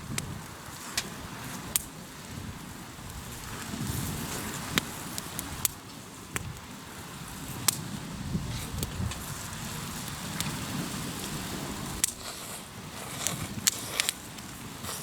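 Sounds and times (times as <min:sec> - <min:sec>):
campfire crackling: 0:00.0 - 0:15.0
waves on the shore: 0:09.0 - 0:15.0.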